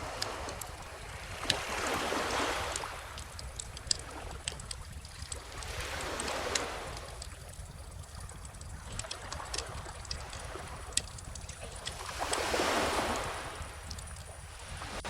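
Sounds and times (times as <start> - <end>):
wood fire crackling and popping: 2.6 - 14.4.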